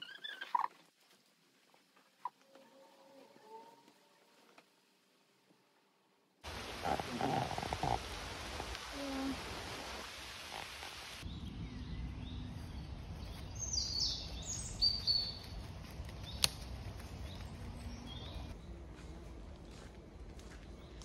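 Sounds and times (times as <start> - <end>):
rain hiss: 6.4 - 11.3
songbirds singing: 11.2 - 19.9.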